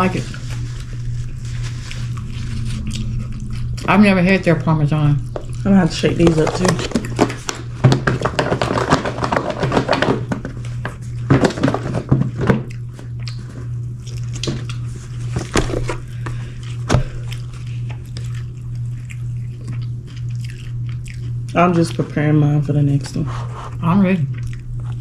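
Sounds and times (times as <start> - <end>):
steady low hum: 0.0 - 25.0
food rattling in a takeout box: 6.1 - 12.7
clicks and knocks of handled food: 6.2 - 18.5.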